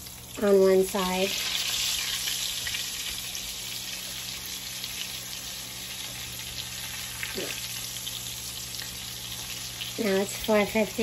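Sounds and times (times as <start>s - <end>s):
eggplant sizzling in oil: 0.0s - 11.0s.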